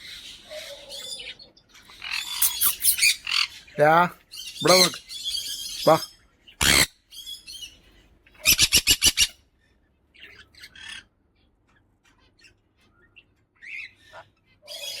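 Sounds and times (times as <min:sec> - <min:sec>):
parrot squawking: 0:01.9 - 0:06.9, 0:08.4 - 0:09.4, 0:13.6 - 0:15.0.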